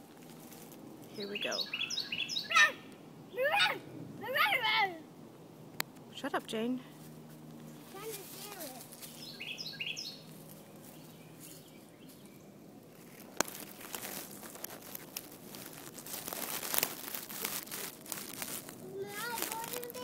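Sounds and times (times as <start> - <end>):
swallows chirping: 1.1 - 2.8, 8.9 - 12.6.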